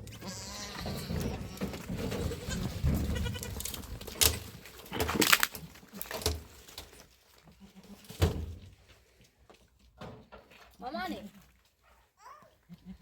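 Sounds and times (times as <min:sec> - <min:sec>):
goats bleating: 0:00.0 - 0:03.8.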